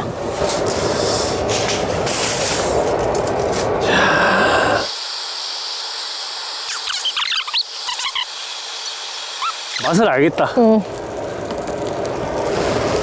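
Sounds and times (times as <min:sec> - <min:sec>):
food sizzling on grill: 0:03.9 - 0:13.0.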